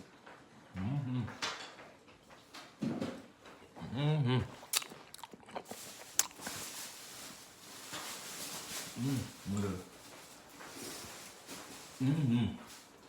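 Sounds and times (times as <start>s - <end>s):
chewing: 4.4s - 6.8s
person humming: 12.0s - 12.6s.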